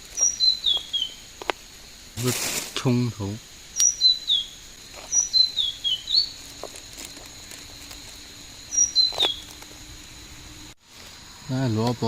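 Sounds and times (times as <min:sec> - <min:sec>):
songbird whistling falling notes: 0:00.2 - 0:01.2, 0:03.8 - 0:06.4, 0:08.7 - 0:10.6.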